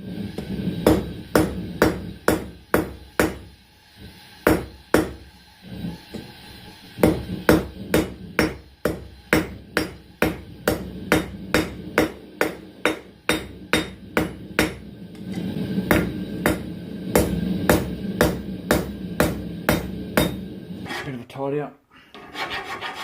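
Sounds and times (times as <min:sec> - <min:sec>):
hammer striking steel on anvil: 0:00.8 - 0:03.5, 0:04.4 - 0:05.2, 0:07.0 - 0:14.8, 0:15.9 - 0:20.4.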